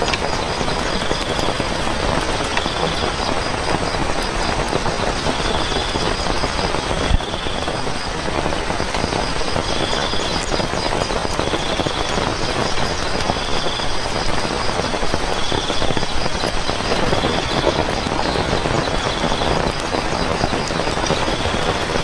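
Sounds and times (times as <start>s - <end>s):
rain pattering: 0.0s - 22.0s.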